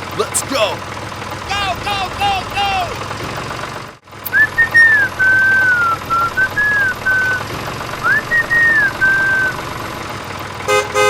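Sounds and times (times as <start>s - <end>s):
engine running: 0.0s - 11.0s
person whistling a tune: 4.3s - 7.4s.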